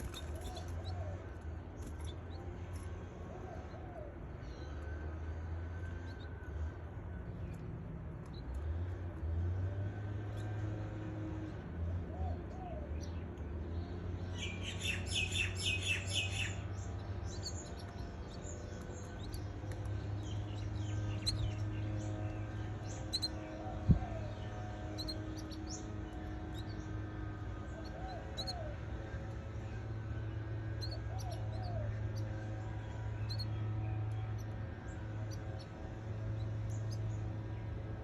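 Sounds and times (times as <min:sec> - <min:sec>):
canaries chirping: 0:00.0 - 0:02.8, 0:14.0 - 0:38.0
steady low hum: 0:00.0 - 0:38.0.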